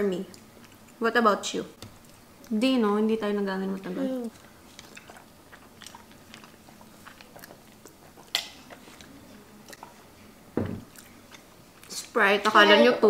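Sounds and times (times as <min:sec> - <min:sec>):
person chewing: 0:00.3 - 0:01.0, 0:01.8 - 0:02.6, 0:03.7 - 0:12.1
short thump: 0:10.6 - 0:10.9.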